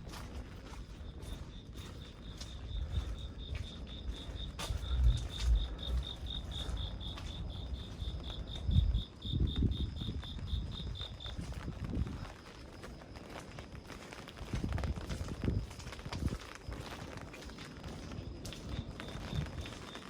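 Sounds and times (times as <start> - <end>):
cricket chirping: 0.0 - 20.0
footsteps thumping: 2.3 - 8.1.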